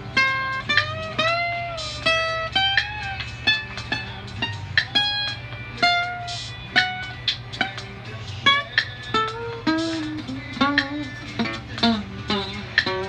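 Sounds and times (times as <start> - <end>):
guitar plucking slow melody: 0.0 - 13.0
steady low hum: 0.0 - 13.0.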